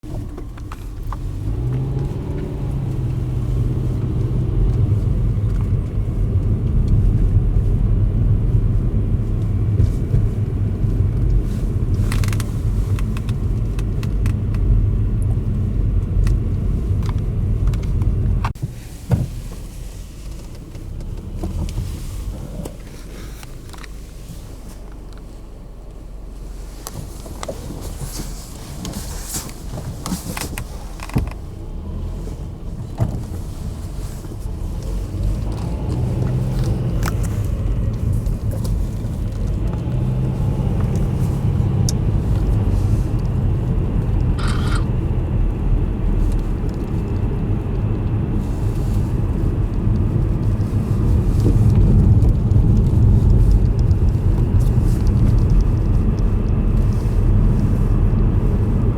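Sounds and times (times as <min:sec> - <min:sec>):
low vehicle rumble: 0:00.0 - 0:58.9
sharp clicks: 0:44.2 - 0:44.9.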